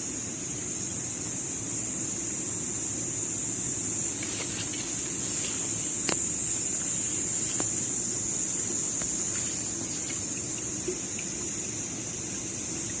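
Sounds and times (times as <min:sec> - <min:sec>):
high-pitched hiss: 0:00.0 - 0:13.0
running water rushing: 0:03.0 - 0:13.0
faint ticks: 0:04.2 - 0:11.8.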